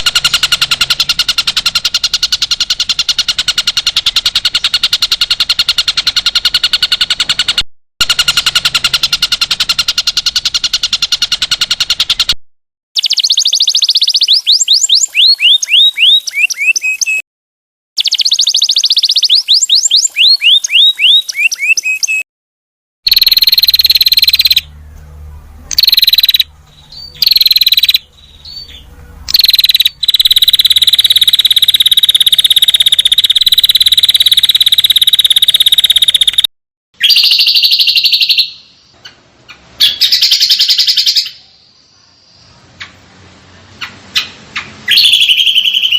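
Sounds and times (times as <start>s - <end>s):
high songbird chirps: 13.0s - 17.2s, 18.0s - 22.2s, 23.1s - 24.9s, 25.7s - 36.4s, 37.0s - 42.7s, 43.8s - 45.9s
fast high bird trill: 23.1s - 24.7s, 25.7s - 38.7s.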